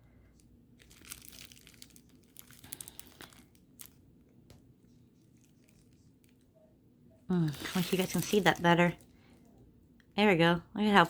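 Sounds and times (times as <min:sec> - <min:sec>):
packaging crinkling: 0:00.8 - 0:04.2, 0:07.4 - 0:09.1.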